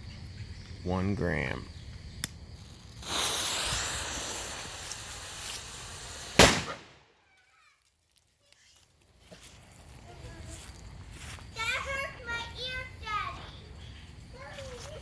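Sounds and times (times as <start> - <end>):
fuse hissing: 1.2 - 7.0
firecracker bang: 2.9 - 7.1.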